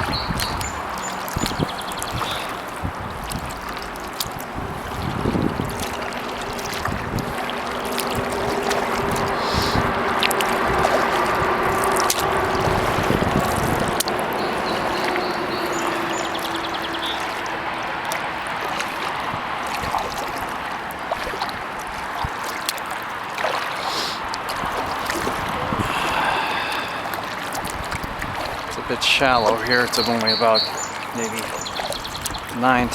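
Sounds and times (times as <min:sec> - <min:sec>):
paddle strokes in water: 0:00.0 - 0:32.9
water dripping off paddle: 0:00.0 - 0:32.9.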